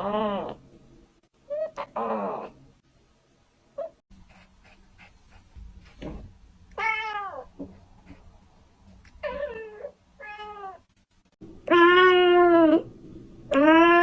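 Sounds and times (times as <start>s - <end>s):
kitten meowing: 11.6s - 12.8s, 13.5s - 14.0s.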